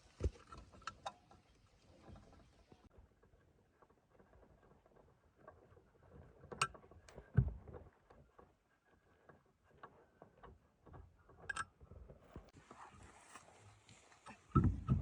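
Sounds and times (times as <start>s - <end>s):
dull thump: 14.5s - 15.0s.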